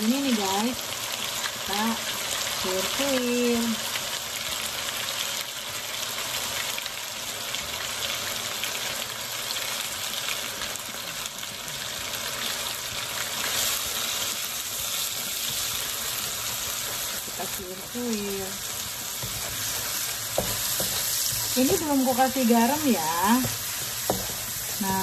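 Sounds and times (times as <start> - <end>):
food sizzling in hot oil: 0.0 - 25.0
wooden spatula stirring in wok: 13.2 - 25.0.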